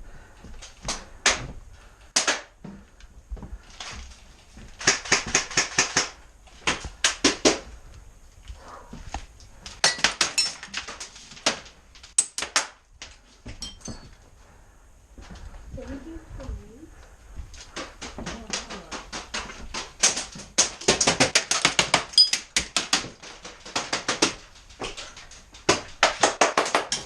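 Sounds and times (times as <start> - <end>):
airsoft guns firing: 2.1 - 2.6, 4.8 - 7.7.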